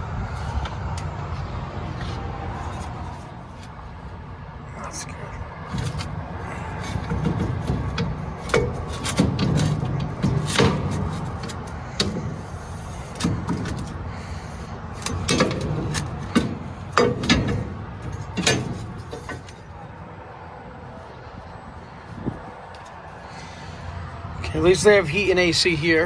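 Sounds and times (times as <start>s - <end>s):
steady low rumble: 0.0s - 26.0s
sharp knocks and clatters: 5.7s - 19.7s.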